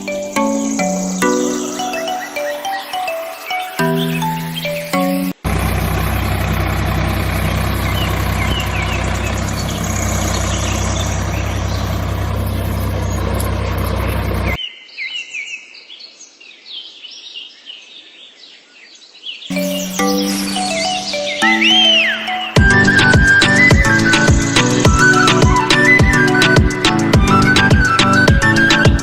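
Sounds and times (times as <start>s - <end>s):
birds chirping: 0.0s - 14.7s, 19.5s - 29.0s
engine hum: 5.3s - 14.6s, 19.5s - 29.0s.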